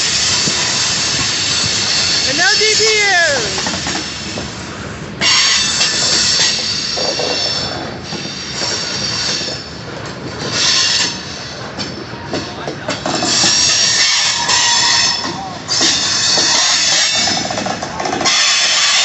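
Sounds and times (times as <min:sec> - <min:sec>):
train wheels squealing: 0:00.0 - 0:02.3, 0:05.2 - 0:19.0
train rumble: 0:00.0 - 0:19.0
wheels clicking over rail joints: 0:05.2 - 0:19.0.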